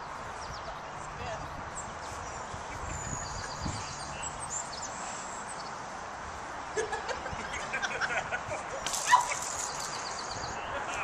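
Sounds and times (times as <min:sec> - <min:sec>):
birds chirping: 0:00.0 - 0:06.1, 0:08.7 - 0:11.0
steady outdoor hiss: 0:00.0 - 0:11.0
bird trill: 0:09.0 - 0:10.7.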